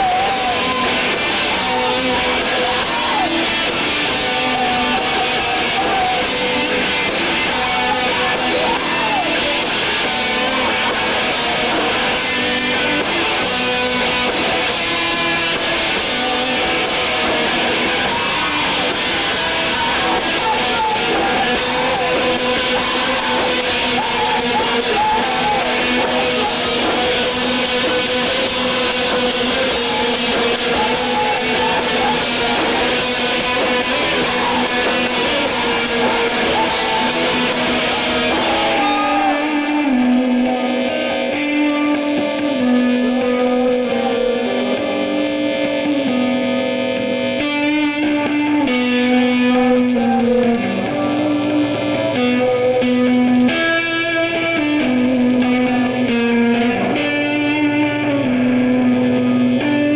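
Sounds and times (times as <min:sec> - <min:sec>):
drums with crashing cymbals: 0:00.0 - 0:40.4
electric guitars: 0:00.0 - 0:59.9.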